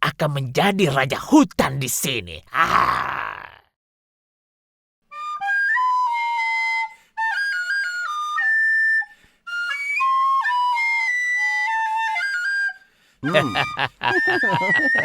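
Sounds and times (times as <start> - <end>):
flute melody: 5.1 - 15.0.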